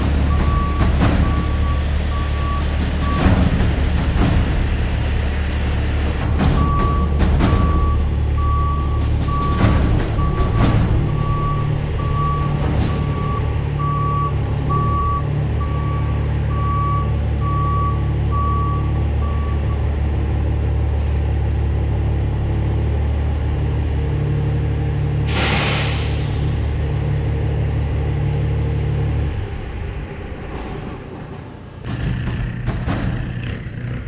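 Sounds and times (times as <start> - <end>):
truck reversing alarm beeps: 0.0 - 3.6, 6.2 - 19.9
diesel engine drone: 0.0 - 34.0
air brake hiss: 21.0 - 21.3, 25.3 - 26.6.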